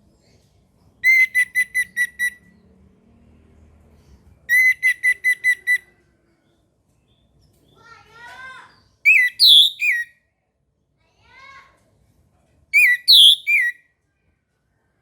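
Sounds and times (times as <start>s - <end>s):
thrush singing whistled notes: 9.1s - 10.1s, 12.8s - 13.8s.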